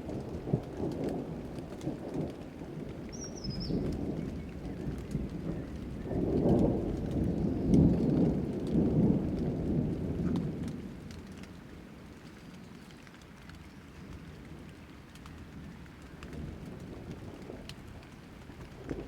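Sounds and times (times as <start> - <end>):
rolling thunder: 0.0 - 11.9, 15.4 - 19.0
rain: 0.0 - 19.0.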